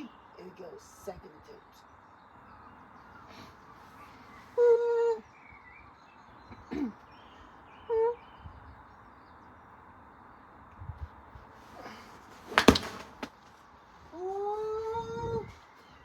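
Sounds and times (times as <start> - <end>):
sharp knock: 12.5 - 13.3.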